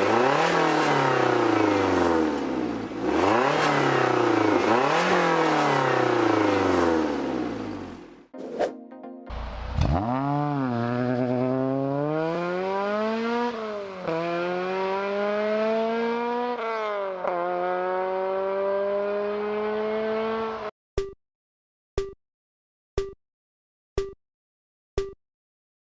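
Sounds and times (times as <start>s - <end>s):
car engine accelerating through gears: 0.0s - 7.9s, 9.3s - 20.7s.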